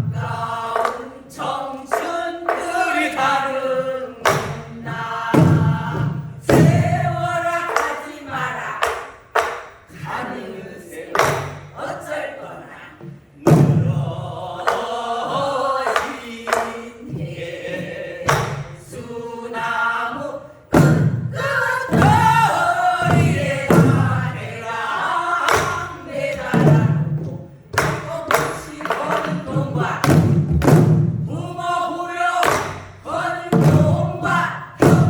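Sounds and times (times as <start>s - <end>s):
group singing together: 0.0s - 35.0s
barrel drum strokes: 4.2s - 8.0s, 13.0s - 19.0s, 20.7s - 31.6s, 32.4s - 35.0s.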